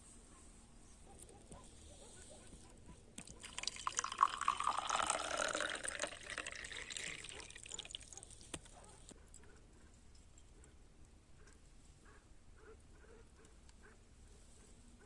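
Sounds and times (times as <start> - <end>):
liquid pouring into a vessel: 3.2 - 8.1.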